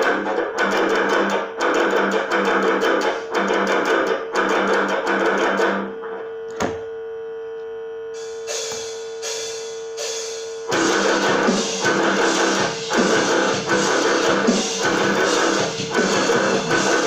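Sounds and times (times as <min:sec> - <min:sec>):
guitar strumming: 0:00.0 - 0:05.9, 0:08.2 - 0:17.0
guitar note ringing: 0:08.2 - 0:17.0.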